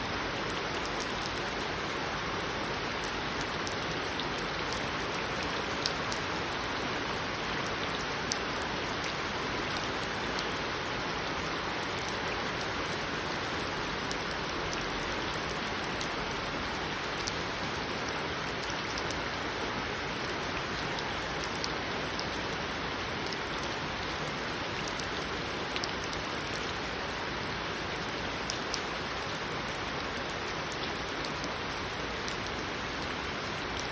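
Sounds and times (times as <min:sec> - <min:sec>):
steady rain hiss: 0:00.0 - 0:33.9.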